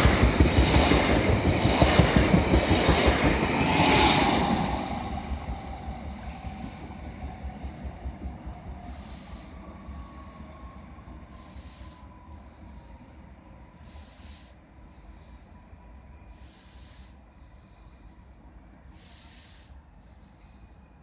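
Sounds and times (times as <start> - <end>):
train rumble and whine: 0.0 - 21.0
whistling breathing: 4.4 - 21.0.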